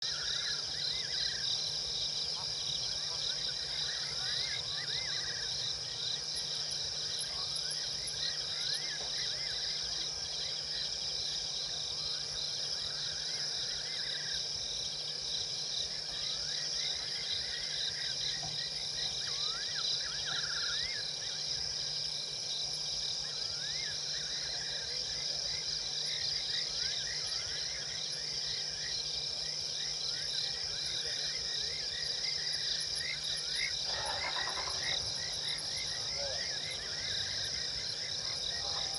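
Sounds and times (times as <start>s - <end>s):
crickets chirring: 0.0s - 38.9s
animal rising and falling calls: 33.9s - 34.9s.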